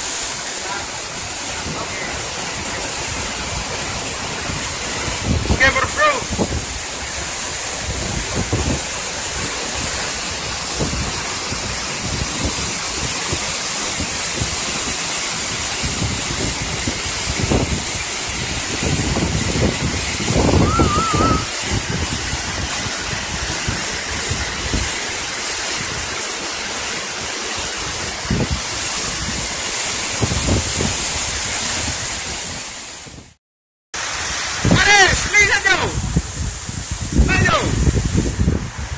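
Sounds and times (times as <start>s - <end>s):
waterfall rushing: 0.0s - 33.0s, 34.0s - 38.9s
wind buffeting microphone: 1.2s - 13.4s, 15.5s - 25.0s, 27.9s - 33.3s, 35.9s - 38.9s
wavering whistle: 20.5s - 21.6s.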